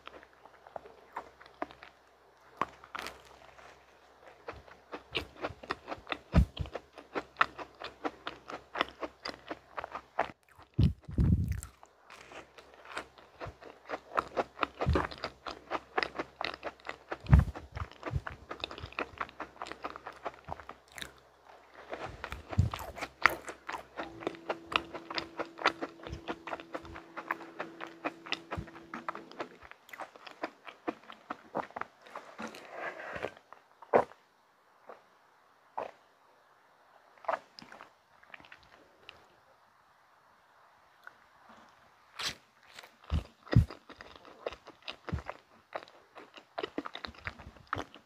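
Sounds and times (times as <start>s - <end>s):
crunchy chewing: 0.0s - 34.2s, 35.8s - 36.0s, 37.2s - 39.3s, 41.0s - 48.0s
dull low thumps: 10.8s - 11.6s.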